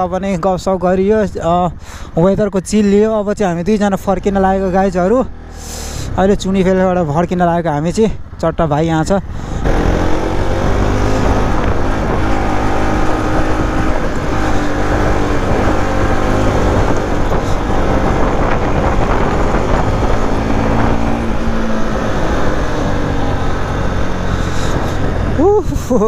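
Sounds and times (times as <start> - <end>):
road and wind noise: 0.0 - 26.0
motorcycle engine running: 9.5 - 26.0.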